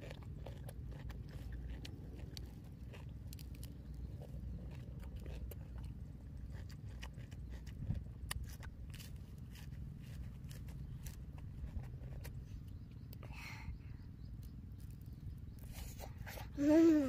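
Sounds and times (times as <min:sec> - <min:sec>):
person chewing and crunching: 0:00.0 - 0:13.2
steady low rumble: 0:00.0 - 0:17.0.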